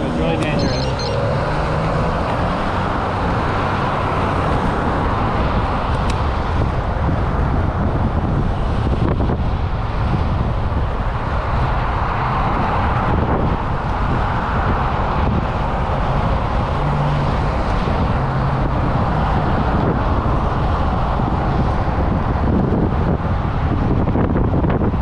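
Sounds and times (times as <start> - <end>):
faint engine tone: 0.0 - 1.4
vehicle road noise: 0.0 - 25.0
wind buffeting microphone: 0.0 - 25.0.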